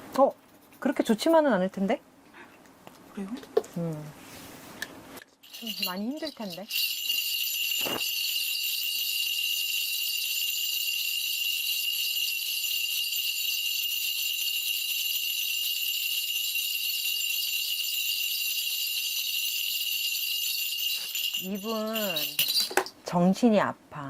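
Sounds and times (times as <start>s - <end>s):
brass bells jingling: 5.4s - 22.9s.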